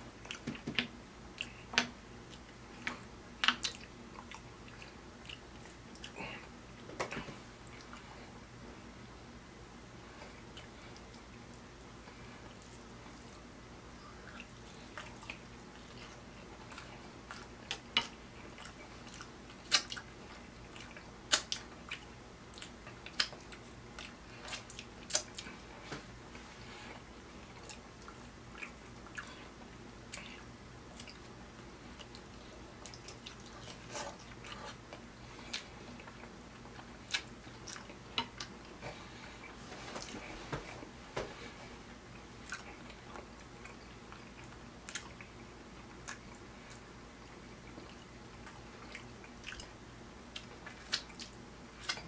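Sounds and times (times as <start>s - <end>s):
faint steady hum: 0.0s - 52.0s
wet chewing clicks and smacks: 0.2s - 6.2s, 14.2s - 25.6s, 27.3s - 29.4s, 30.1s - 38.8s, 42.1s - 52.0s.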